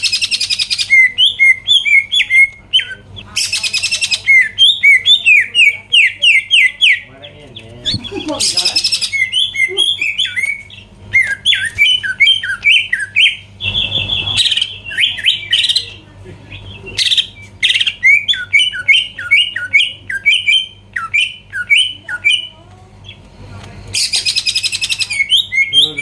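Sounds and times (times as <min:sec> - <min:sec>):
harsh bird squawks: 0:07.8 - 0:23.2, 0:23.9 - 0:26.0.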